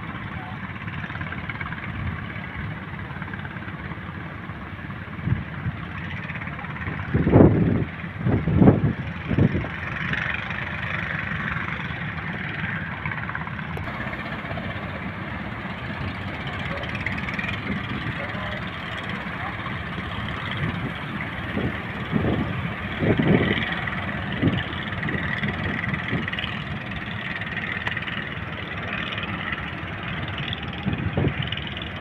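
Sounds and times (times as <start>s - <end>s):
deep wave rumbles: 6.9s - 32.0s
heavy surf roaring: 7.2s - 32.0s.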